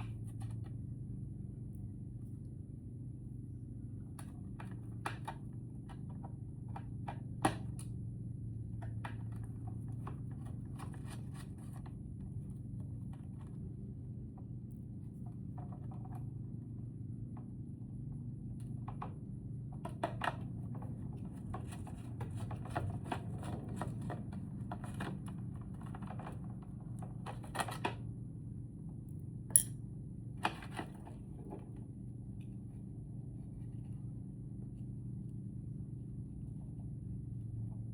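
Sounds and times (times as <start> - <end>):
steady low hum: 0.0 - 27.1, 28.1 - 37.9
hand tools clicking and rattling: 29.5 - 29.7.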